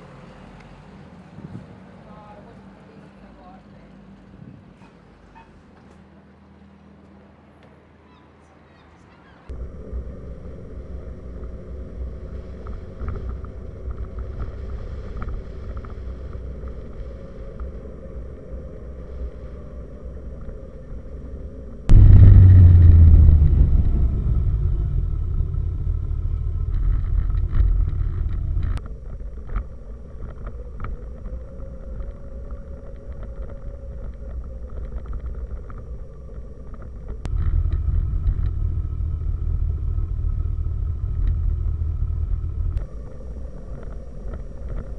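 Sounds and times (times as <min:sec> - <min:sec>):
wind rumble on microphone: 0:01.2 - 0:01.9, 0:04.2 - 0:04.9, 0:09.5 - 0:44.9
motorcycle engine drone: 0:09.5 - 0:44.9.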